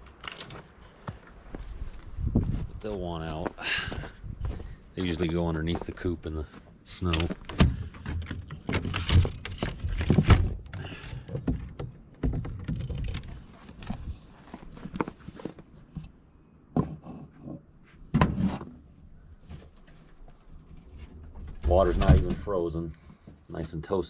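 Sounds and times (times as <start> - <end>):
coop door clunks and knocks: 7.2 - 13.4, 21.4 - 22.5.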